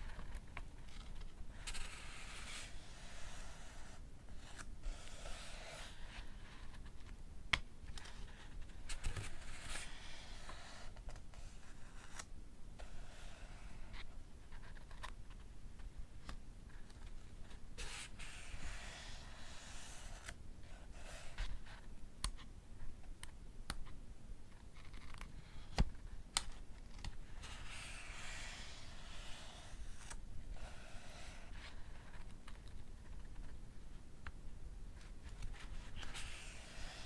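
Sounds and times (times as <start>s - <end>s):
book pages turning: 24.7s - 32.4s, 35.3s - 37.0s.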